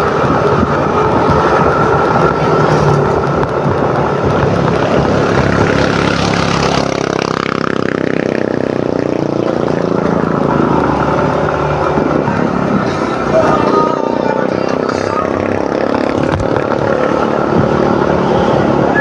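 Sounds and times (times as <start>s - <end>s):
motor scooter engine running: 0.0s - 19.0s
wind on microphone: 0.0s - 19.0s.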